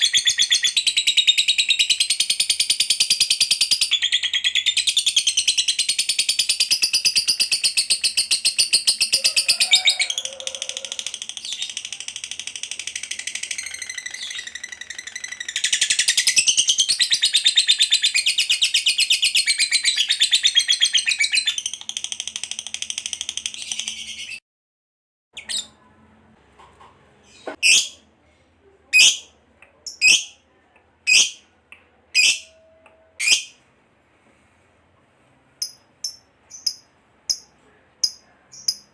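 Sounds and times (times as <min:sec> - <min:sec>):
lovebird rapid trill: 0:10.9 - 0:16.8.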